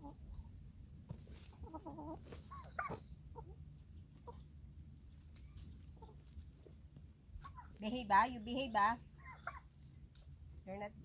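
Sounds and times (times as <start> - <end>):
poultry calling: 0.0 - 0.4, 1.5 - 3.6, 7.4 - 7.8, 9.2 - 9.8
poultry clucking: 0.0 - 6.8, 7.4 - 8.0, 8.6 - 10.3.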